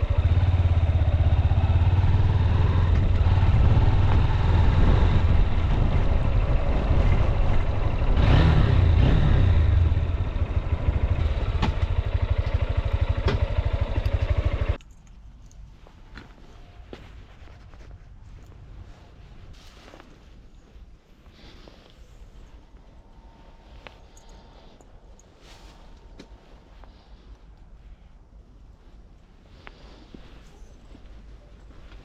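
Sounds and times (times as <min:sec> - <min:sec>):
motorcycle engine running and idling: 0:00.0 - 0:14.8.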